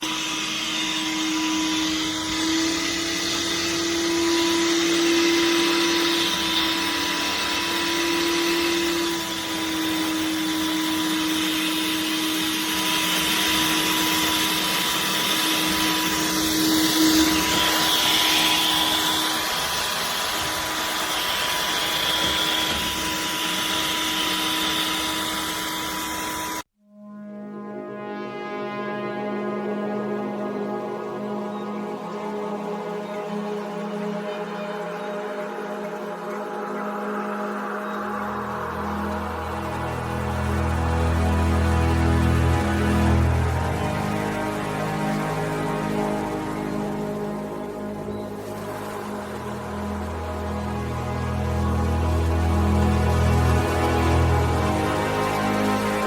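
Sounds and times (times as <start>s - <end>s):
carpet cleaner motor hum: 0.0s - 26.6s
suction hiss: 0.0s - 26.6s.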